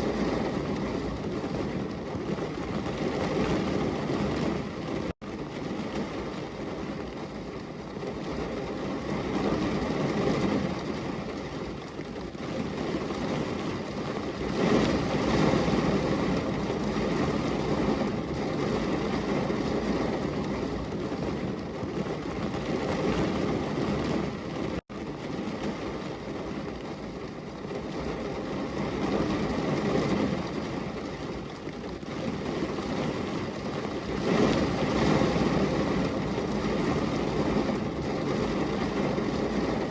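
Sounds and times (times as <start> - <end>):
steady rain: 0.0 - 39.9
low rolling thunder: 32.2 - 39.9.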